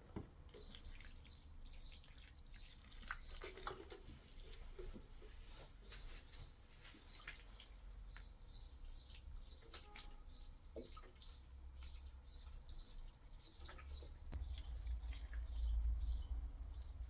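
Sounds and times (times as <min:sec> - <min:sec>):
water dripping: 0:07.1 - 0:17.0.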